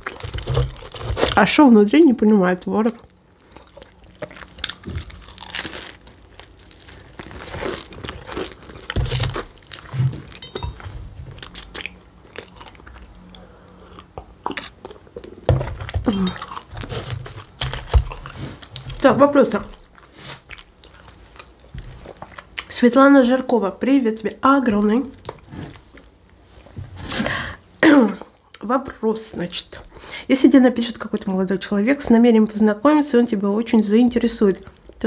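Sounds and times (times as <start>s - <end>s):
person chewing crunchy pastry: 0.0s - 1.4s, 2.2s - 22.8s, 24.8s - 26.7s.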